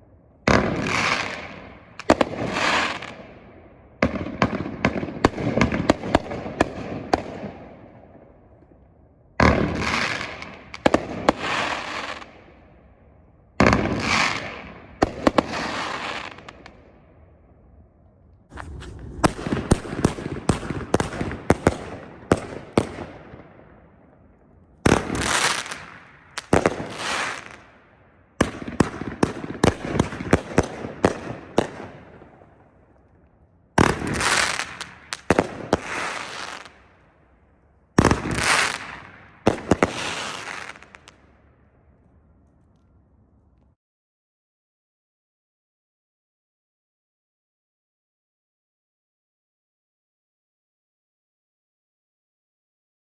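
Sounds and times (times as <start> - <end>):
fireworks cake firing: 18.5 - 23.2.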